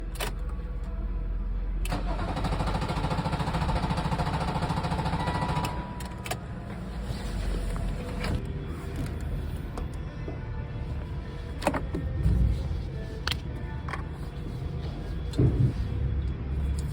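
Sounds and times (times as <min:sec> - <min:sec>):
diesel engine starter cranking: 0:01.8 - 0:06.5.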